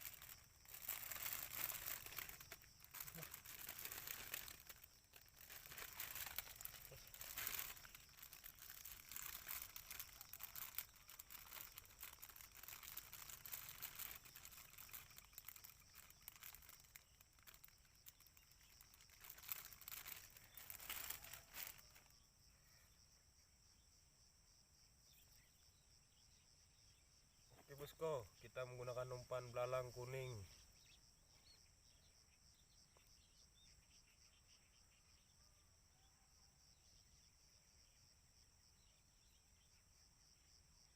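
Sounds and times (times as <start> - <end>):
rustling and crinkling handling noise: 0.0 - 22.1.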